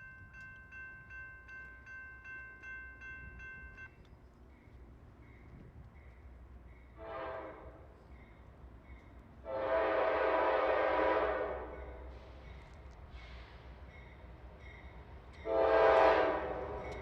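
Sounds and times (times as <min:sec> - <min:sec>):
locomotive air horn blasts: 0:07.0 - 0:07.8, 0:09.4 - 0:12.0, 0:15.4 - 0:16.9.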